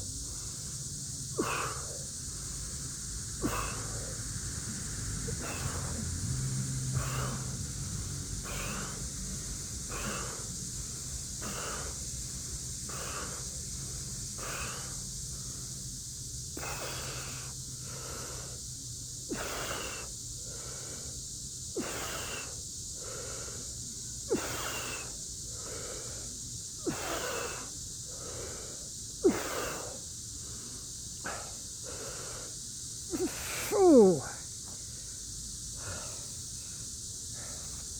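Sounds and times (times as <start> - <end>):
cicada chorus drone: 0.0 - 37.9
heavy rhythmic breathing: 0.0 - 37.9.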